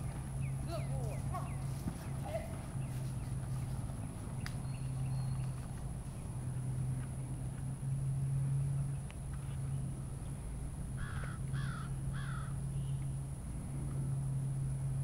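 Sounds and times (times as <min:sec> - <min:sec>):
steady low hum: 0:00.0 - 0:15.0
bird calling: 0:11.0 - 0:13.0.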